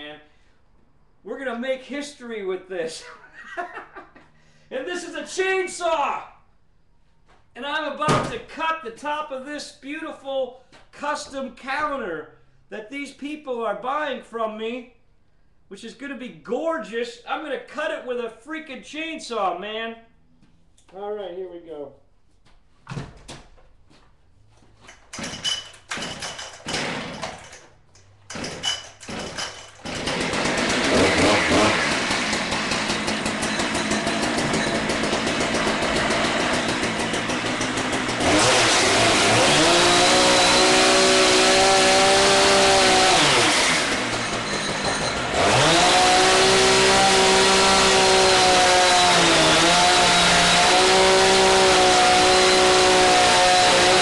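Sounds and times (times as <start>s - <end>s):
chainsaw sputtering while pull-started: 25.1s - 27.7s, 28.3s - 54.0s
chainsaw revving at full throttle: 25.9s - 27.5s, 28.3s - 54.0s.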